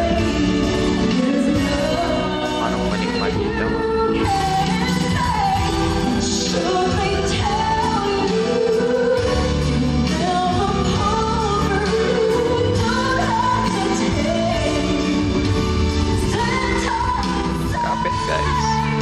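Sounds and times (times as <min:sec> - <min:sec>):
band accompaniment: 0:00.0 - 0:19.0
woman singing a pop ballad: 0:00.0 - 0:19.0.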